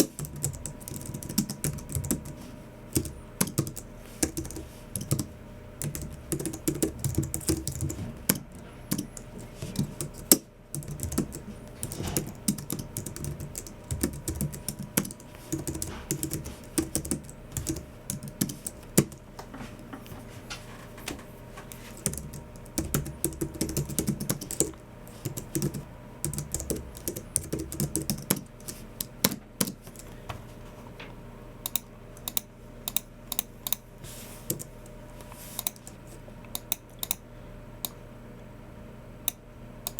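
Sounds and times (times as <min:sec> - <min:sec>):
keyboard typing: 0:00.0 - 0:19.2, 0:21.9 - 0:30.1, 0:34.5 - 0:34.7.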